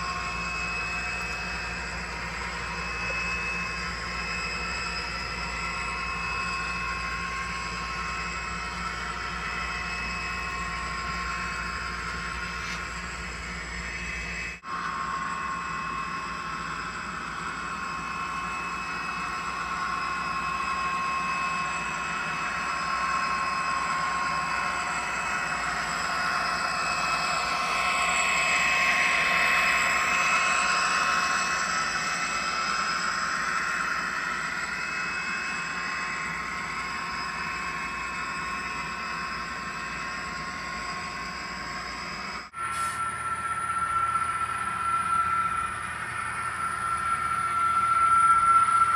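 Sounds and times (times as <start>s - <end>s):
model train mechanical whine: 0.0s - 48.9s
wheels rushing on rail: 32.3s - 48.9s.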